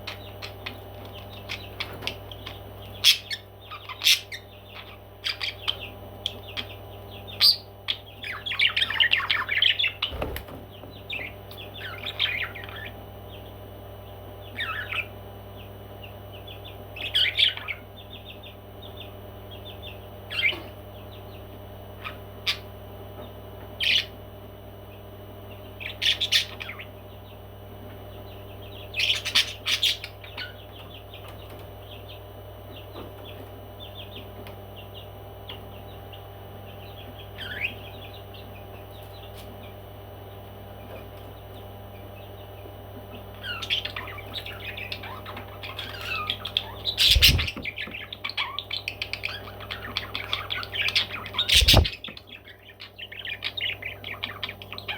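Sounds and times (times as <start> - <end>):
parrots chirping and squawking: 0.0 - 10.4, 11.1 - 13.0, 14.6 - 15.1, 17.0 - 17.8, 20.3 - 20.7, 23.8 - 24.1, 25.8 - 27.0, 29.0 - 31.3, 37.4 - 37.8, 43.3 - 54.9
low background hum: 0.0 - 54.9.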